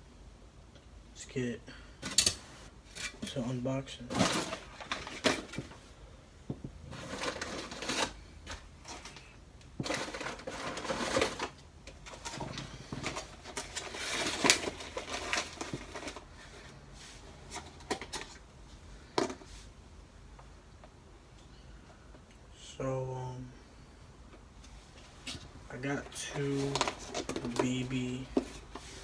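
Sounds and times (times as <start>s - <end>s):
packaging rustling and scraping: 2.0s - 3.5s, 4.1s - 6.0s, 6.7s - 18.4s, 24.7s - 29.0s.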